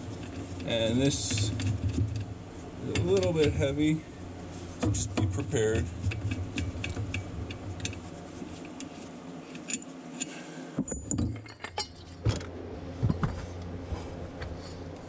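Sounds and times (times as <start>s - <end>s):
metal parts clinking: 8.6s - 10.3s, 10.9s - 12.2s.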